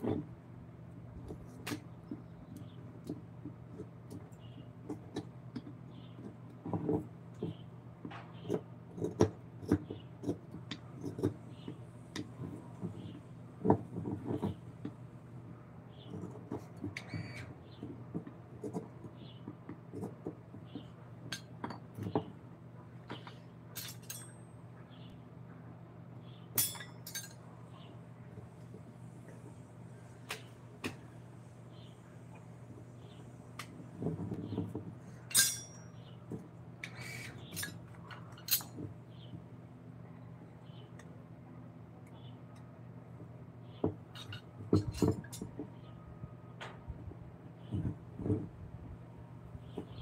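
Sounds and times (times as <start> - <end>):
steady low hum: 0.0 - 50.0
metallic clinks: 26.6 - 27.4, 35.3 - 36.0.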